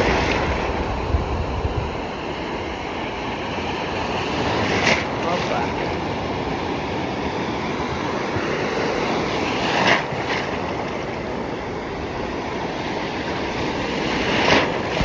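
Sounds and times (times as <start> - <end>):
loud wave crashes: 0.0 - 1.8
sea surf breaking: 0.0 - 15.0.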